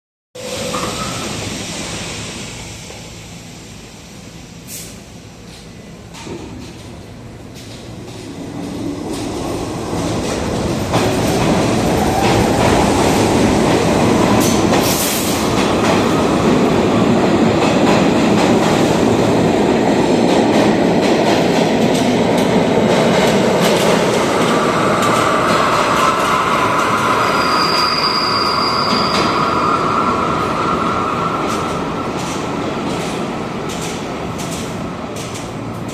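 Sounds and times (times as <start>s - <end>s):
subway car motor howl: 0.4s - 35.9s
subway wheels rumbling on rail: 0.4s - 35.9s
high squeal: 26.7s - 31.3s.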